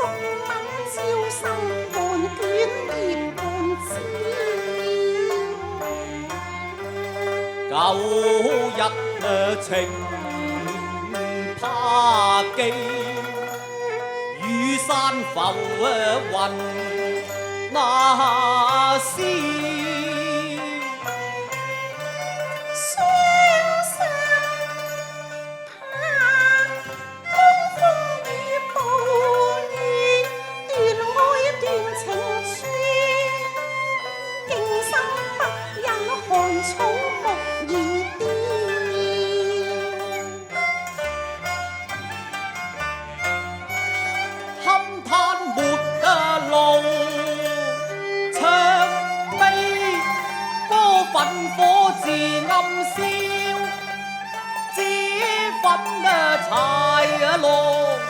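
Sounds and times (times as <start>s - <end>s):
bowed strings melody: 0.0s - 58.0s.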